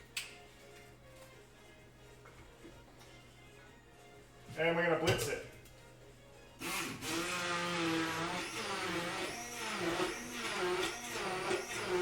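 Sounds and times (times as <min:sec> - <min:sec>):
blender motor whining: 0:06.6 - 0:12.0.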